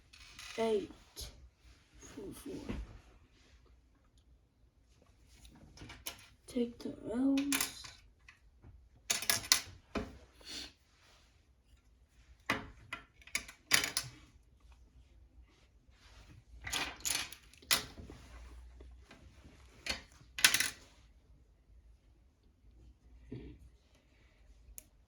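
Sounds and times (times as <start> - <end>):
plastic pieces clicking and clattering: 9.1 - 9.7.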